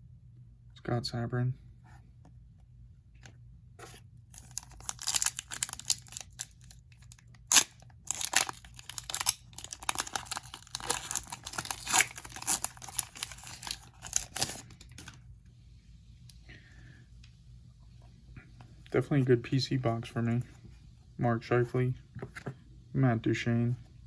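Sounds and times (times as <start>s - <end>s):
foil wrapper crinkling: 3.8s - 15.2s.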